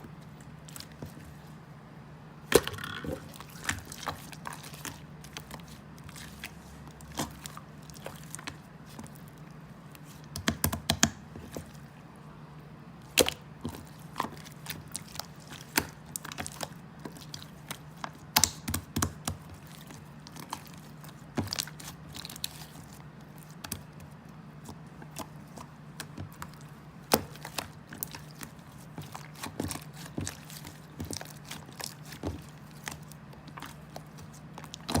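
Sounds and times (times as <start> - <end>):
steady low hum: 0.0 - 35.0
chewing and crunching: 2.5 - 10.4, 13.0 - 35.0.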